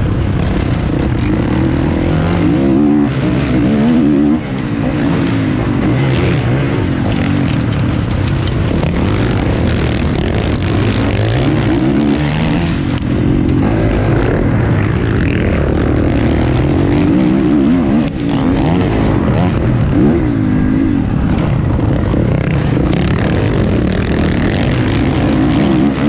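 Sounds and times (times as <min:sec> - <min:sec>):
motocross bike engine revving: 0:00.0 - 0:26.0
sharp ticks: 0:04.5 - 0:11.5.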